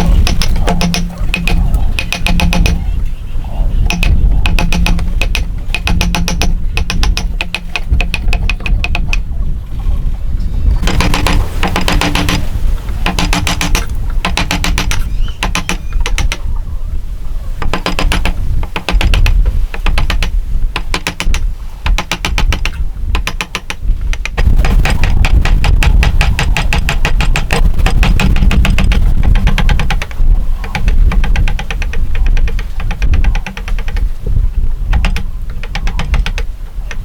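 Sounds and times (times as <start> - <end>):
hand saw cutting wood: 10.8 - 16.4.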